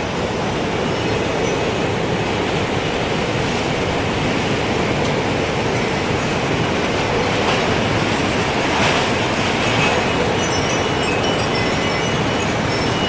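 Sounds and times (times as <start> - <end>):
wind chimes tinkling: 0.3 - 2.9, 5.6 - 7.2, 9.7 - 13.0.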